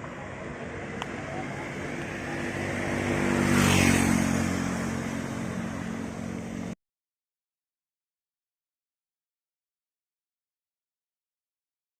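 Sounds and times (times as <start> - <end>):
vehicle engine passing by: 0.0 - 6.8.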